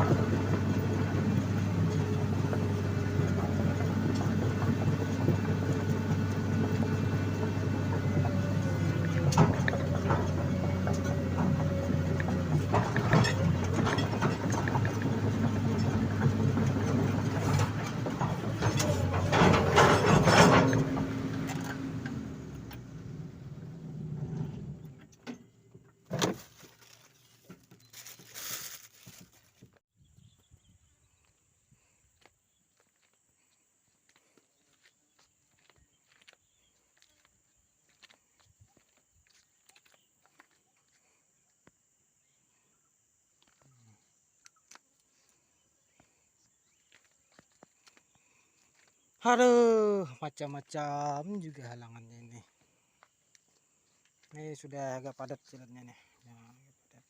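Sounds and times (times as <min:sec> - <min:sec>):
excavator diesel engine running: 0:00.0 - 0:25.5
metallic clanks of machine: 0:08.0 - 0:22.9.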